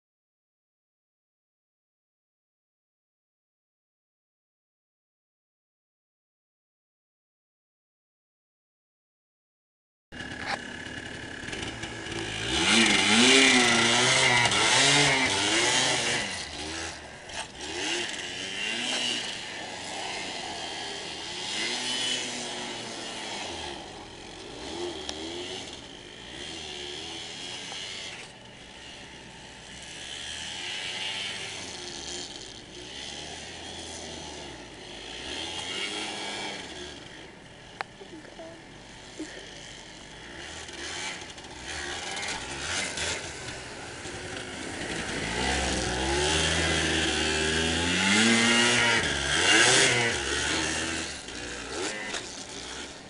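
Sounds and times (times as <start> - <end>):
atv engine revving: 10.2 - 53.0.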